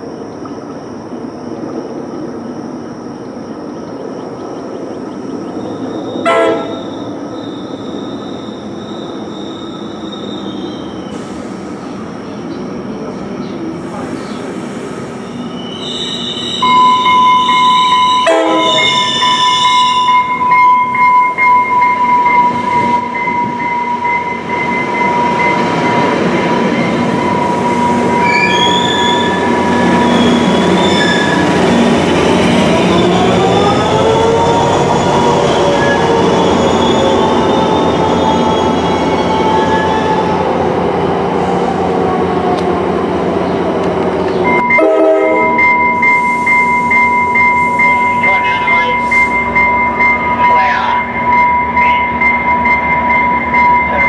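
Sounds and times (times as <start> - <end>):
train rumble: 0.0 - 54.0
high-pitched wheel squeal: 5.7 - 11.2, 15.3 - 20.4, 26.7 - 31.5
train horn blasts: 6.2 - 6.9, 16.6 - 20.6, 44.6 - 45.8.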